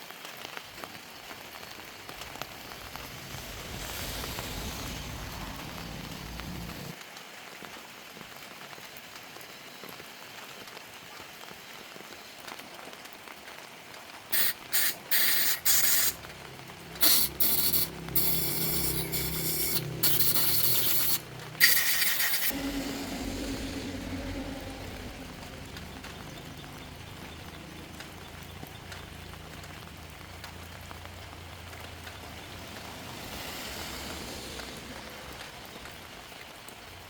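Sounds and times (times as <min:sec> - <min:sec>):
compressed air hissing bursts: 0:14.3 - 0:16.2, 0:17.0 - 0:24.6
low hum: 0:16.1 - 0:37.0.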